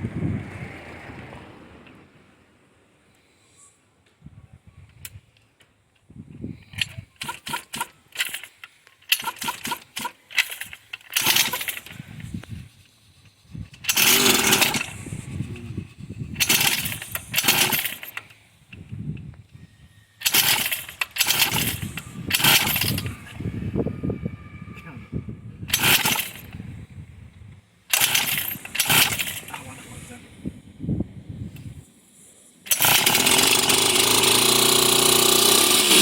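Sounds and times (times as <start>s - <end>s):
dirt bike engine revving: 11.2s - 12.1s, 13.8s - 18.2s, 20.2s - 23.4s, 25.7s - 26.5s, 27.9s - 29.9s, 32.7s - 36.0s.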